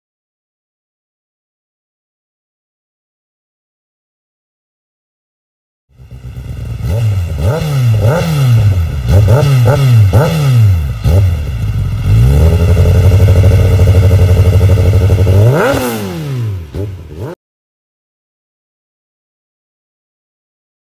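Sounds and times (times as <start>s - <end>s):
motorcycle engine revving: 5.9s - 17.4s.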